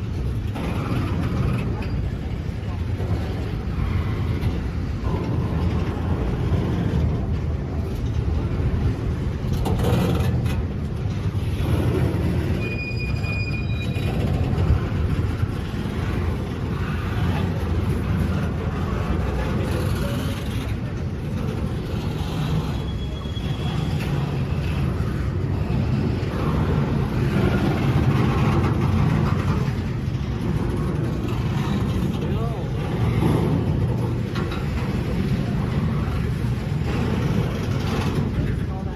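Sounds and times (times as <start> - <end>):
train rumbling on rails: 0.0 - 38.9
high wheel squeal: 12.1 - 14.8, 22.2 - 25.1.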